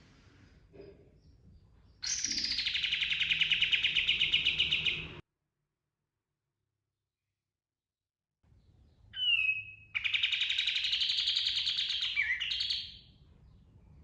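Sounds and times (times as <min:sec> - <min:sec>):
songbird trilling: 0:02.0 - 0:05.2, 0:09.2 - 0:13.1.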